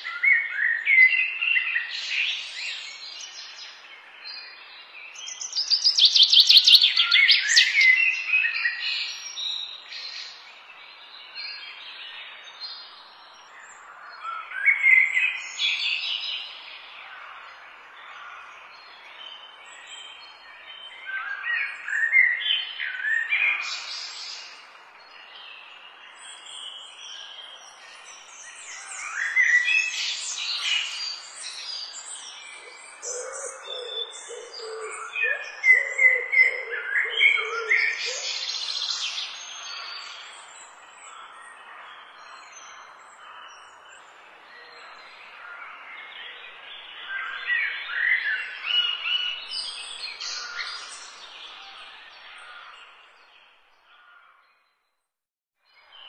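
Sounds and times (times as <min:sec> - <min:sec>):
faint outdoor hiss: 0:00.0 - 0:54.3
birds singing and chirping: 0:00.0 - 0:54.7
lower repeated bird call: 0:32.5 - 0:40.3.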